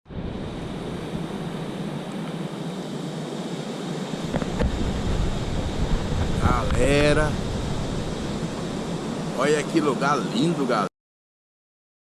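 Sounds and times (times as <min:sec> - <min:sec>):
wind rumble on microphone: 0:00.1 - 0:02.1, 0:04.2 - 0:09.9
waterfall rushing: 0:04.2 - 0:10.8.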